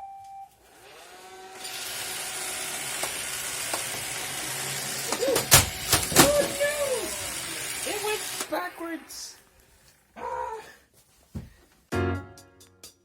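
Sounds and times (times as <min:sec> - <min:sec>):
robot vacuum whirring hiss: 0:01.6 - 0:09.5.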